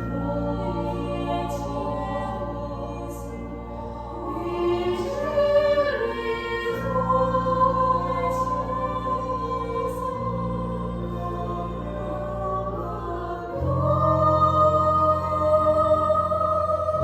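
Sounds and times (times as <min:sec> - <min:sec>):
choral music with held notes: 0:00.0 - 0:17.0.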